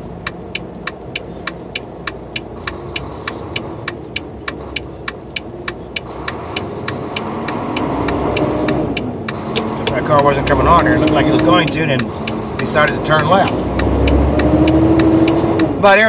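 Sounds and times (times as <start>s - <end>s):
truck diesel engine running: 0.0s - 16.0s
turn signal clicking: 0.0s - 16.0s.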